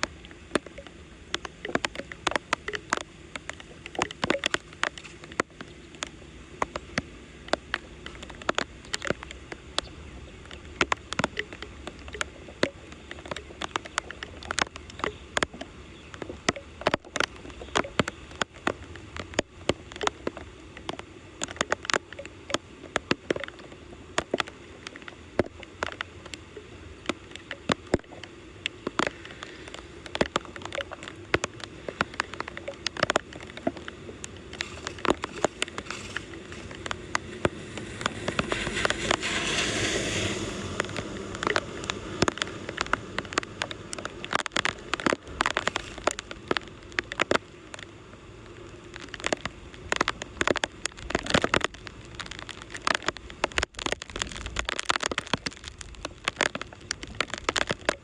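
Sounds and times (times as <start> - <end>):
sharp clicks and taps: 0.0 - 26.4, 27.0 - 39.6, 40.7 - 47.8
floodwater rushing: 0.0 - 58.0.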